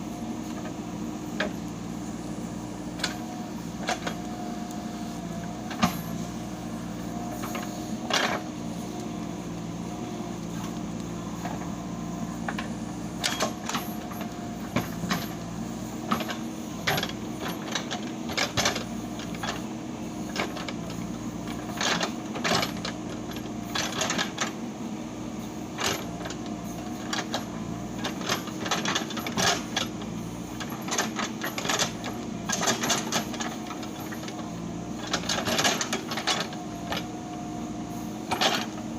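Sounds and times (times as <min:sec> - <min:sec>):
diesel engine running: 0:00.0 - 0:38.9
machine clanking and knocking: 0:12.5 - 0:15.4, 0:16.0 - 0:19.6, 0:30.6 - 0:34.4, 0:35.0 - 0:37.1, 0:38.3 - 0:38.8.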